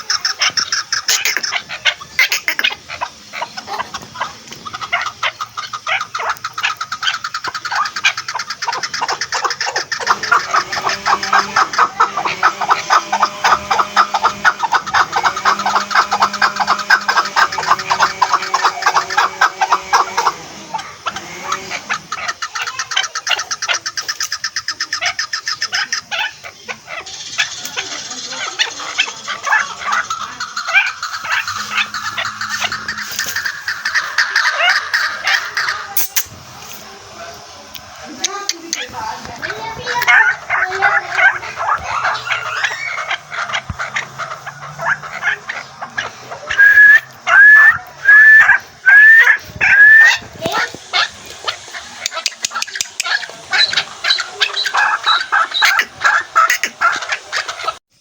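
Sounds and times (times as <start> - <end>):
partridge calling rapid notes: 0.0 - 58.0
loud rising whistled notes: 46.6 - 50.2.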